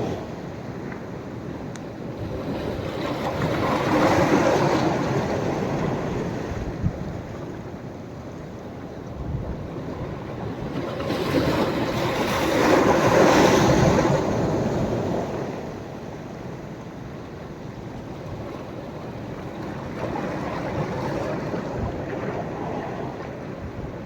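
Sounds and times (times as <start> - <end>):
sea waves breaking on beach: 2.0 - 7.7, 9.6 - 16.3.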